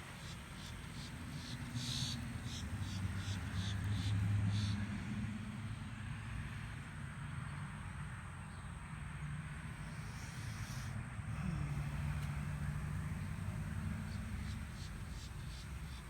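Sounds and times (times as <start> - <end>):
steady low hum: 9.7 - 16.0
faint high ticks: 12.0 - 16.0.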